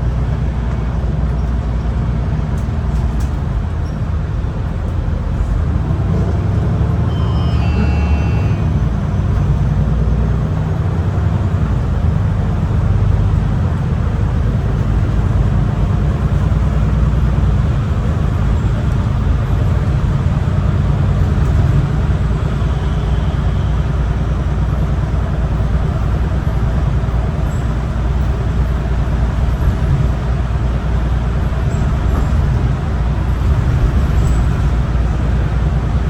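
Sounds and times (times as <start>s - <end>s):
bus engine drone: 0.0s - 36.0s
road and tyre noise: 0.0s - 36.0s
faint high-pitched tones: 7.1s - 8.9s.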